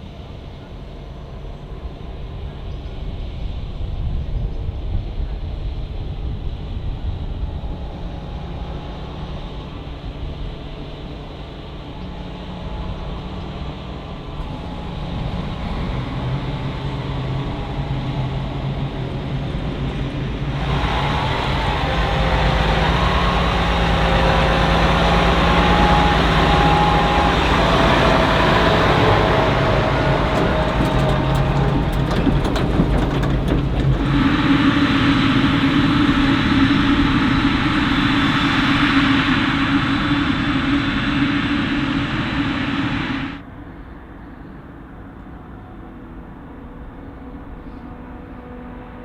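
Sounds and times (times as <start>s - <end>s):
diesel farm machinery rumbling: 20.6s - 35.4s.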